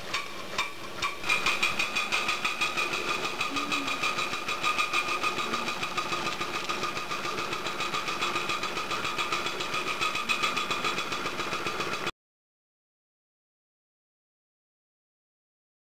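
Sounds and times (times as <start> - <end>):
model steam engine running: 0.0 - 12.1.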